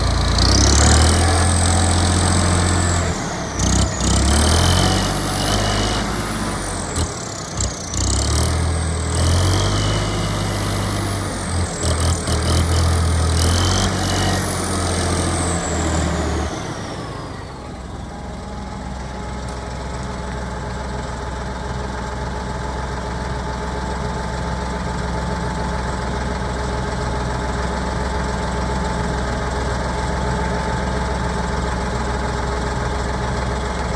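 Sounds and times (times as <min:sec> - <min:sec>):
high engine whine: 0:00.0 - 0:18.8
tractor diesel engine running: 0:00.0 - 0:33.9.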